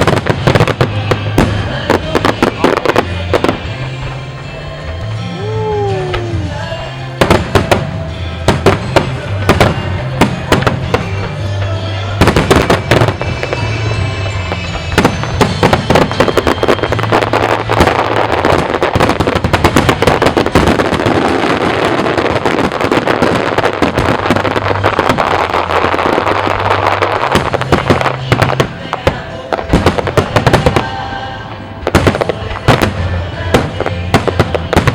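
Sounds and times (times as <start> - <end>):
fireworks bursting and crackling: 0.0 - 34.9
music from loudspeakers: 0.0 - 34.9.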